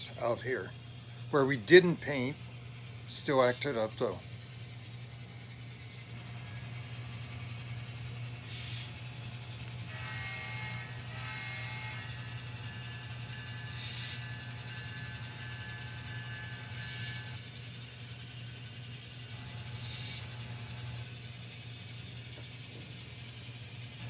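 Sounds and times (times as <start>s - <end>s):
model train electric hum: 0.0s - 24.0s.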